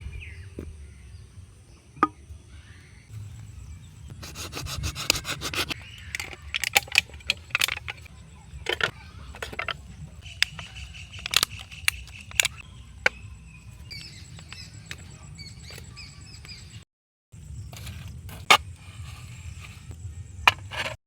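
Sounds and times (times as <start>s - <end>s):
short scraping strokes: 4.1s - 5.8s.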